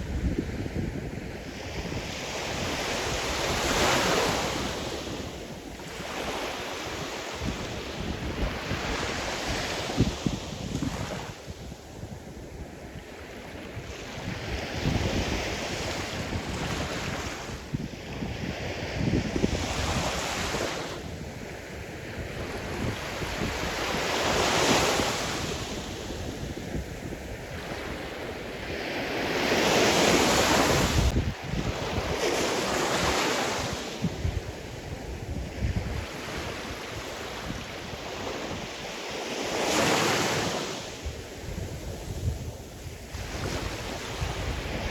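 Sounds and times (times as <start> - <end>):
wind buffeting microphone: 0.0 - 44.9
waves breaking: 27.7 - 34.1.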